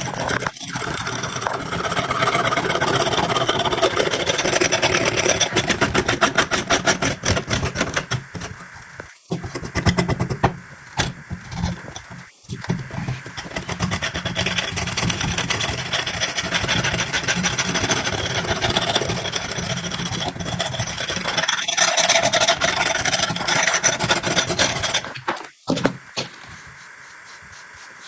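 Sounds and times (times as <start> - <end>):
metal blade being filed: 0.0 - 8.5, 12.9 - 25.1, 26.4 - 28.0.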